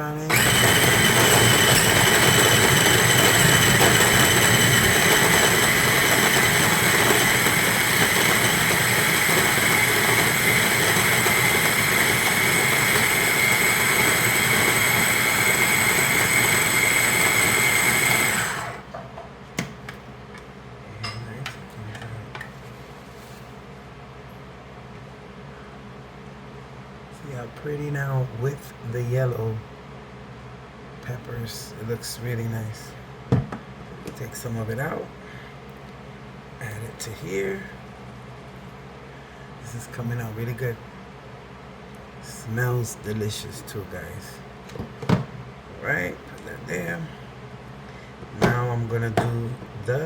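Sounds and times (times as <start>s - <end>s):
electric blender whining: 0.3s - 18.9s.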